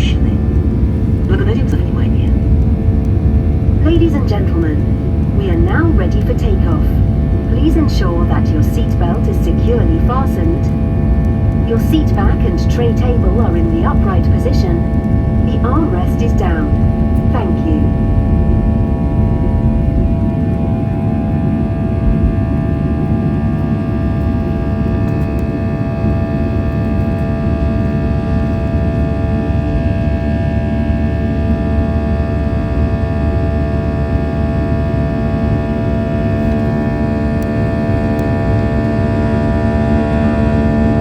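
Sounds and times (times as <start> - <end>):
engine whining tones: 0.0 - 26.5
jet engines rumbling in cabin: 0.0 - 41.0.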